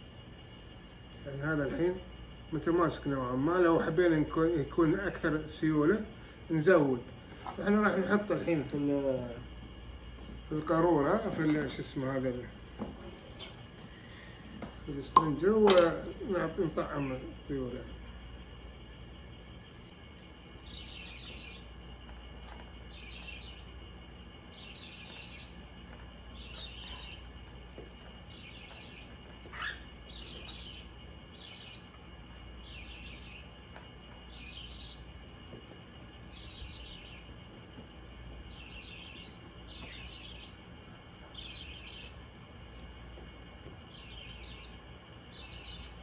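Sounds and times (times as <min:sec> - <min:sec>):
bird chicks begging calls: 0:20.6 - 0:46.0.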